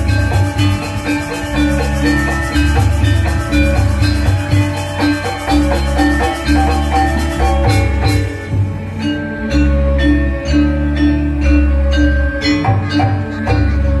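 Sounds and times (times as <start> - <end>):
drums: 0.0 - 14.0
metal percussion ringing: 0.0 - 14.0.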